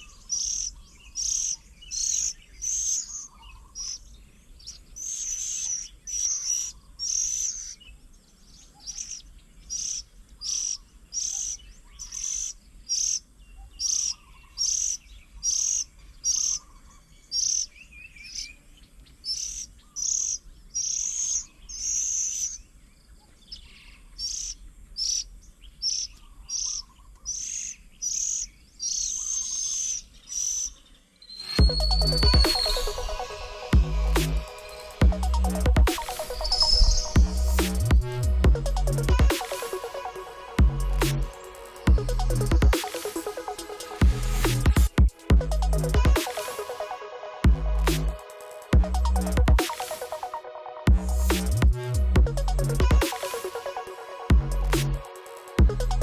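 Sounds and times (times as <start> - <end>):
fainter lower bird notes: 31.4 - 44.7
music: 31.5 - 56.0.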